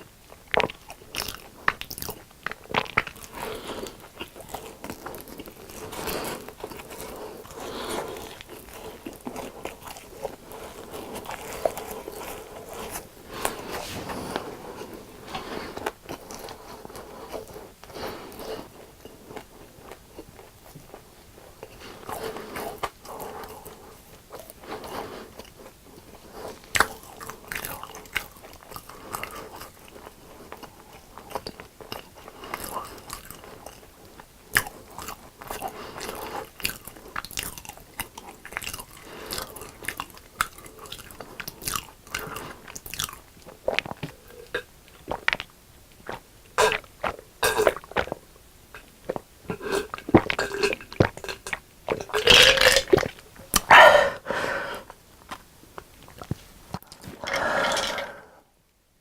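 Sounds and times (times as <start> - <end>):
wet chewing: 0.2 - 58.2
crunching crispy food: 34.5 - 48.2.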